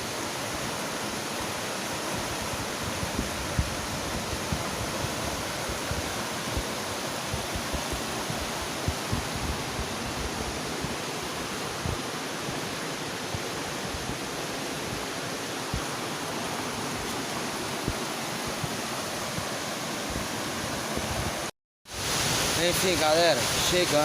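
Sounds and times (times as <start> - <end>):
waterfall rushing: 0.0 - 24.0
low thumps on microphone: 7.3 - 9.9, 11.8 - 12.6.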